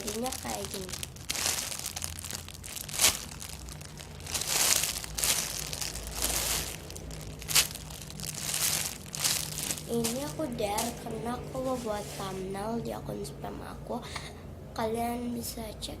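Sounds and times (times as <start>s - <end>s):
sharp crackles: 0.0s - 11.1s
foam toy crinkling and rustling: 0.0s - 12.4s.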